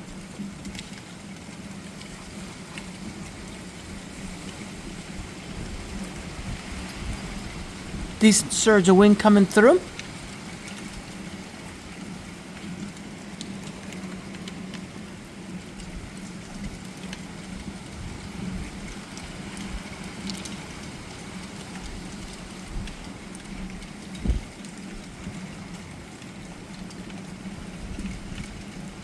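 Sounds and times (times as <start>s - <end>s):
rain falling: 0.0s - 29.0s
gusting wind: 4.2s - 8.2s
raindrops ticking: 8.2s - 29.0s.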